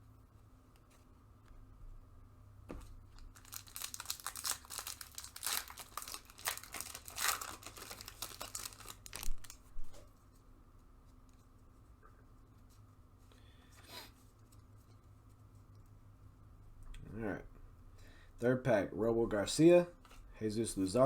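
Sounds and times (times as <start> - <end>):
wrapper tearing and crinkling: 3.1 - 9.7.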